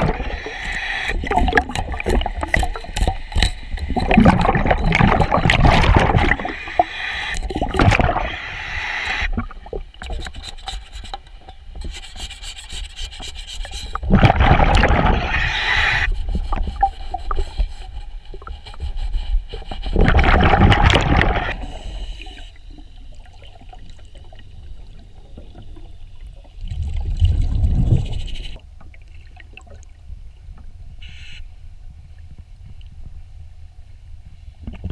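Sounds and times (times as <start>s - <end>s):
regulator bubbles gushing: 0.0s - 8.5s, 13.9s - 17.4s, 19.9s - 21.8s.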